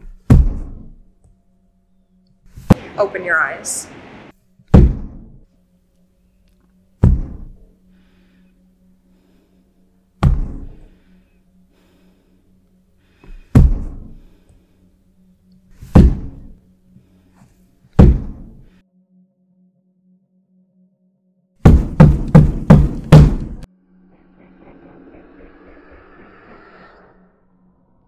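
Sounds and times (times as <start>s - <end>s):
loud sharp thuds: 4.7s - 5.3s, 7.0s - 7.5s, 10.2s - 10.7s, 13.6s - 14.1s, 15.9s - 16.5s, 18.0s - 18.5s, 21.6s - 23.7s
steady low hum: 21.7s - 28.0s.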